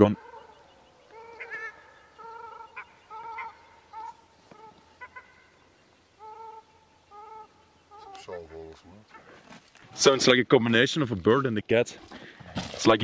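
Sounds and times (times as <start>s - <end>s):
birds mewing calls: 0.0s - 9.9s.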